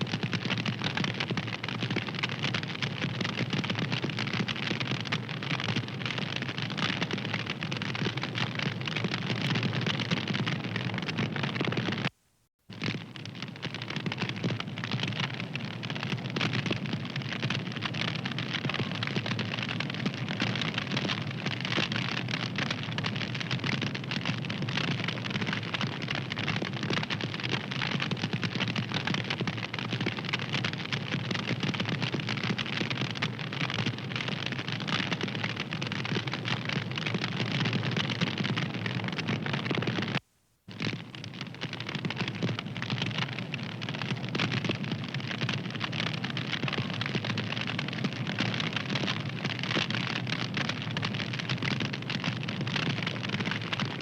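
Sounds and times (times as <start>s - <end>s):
wood fire crackling: 12.7s - 54.0s.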